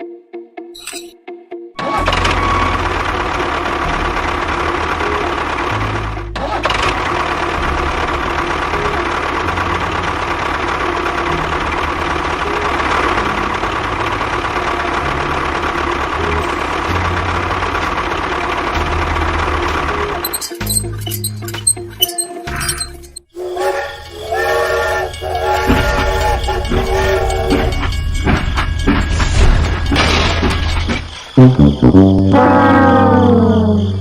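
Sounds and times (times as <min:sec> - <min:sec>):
background music with bass line: 0:31.4 - 0:33.0.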